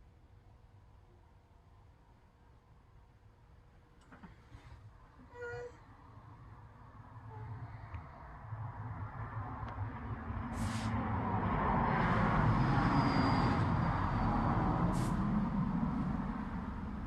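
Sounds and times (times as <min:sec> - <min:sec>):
short high hisses: 0:10.6 - 0:11.0, 0:14.9 - 0:15.2.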